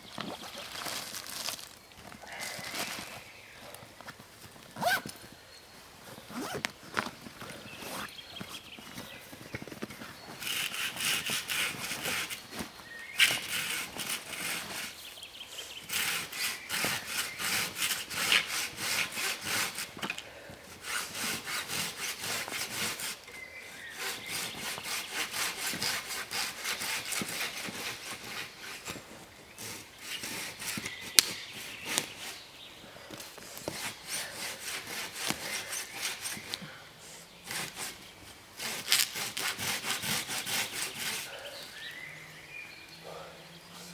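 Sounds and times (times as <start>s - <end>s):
hand saw cutting wood: 10.2s - 32.4s, 33.4s - 36.6s, 37.4s - 41.9s.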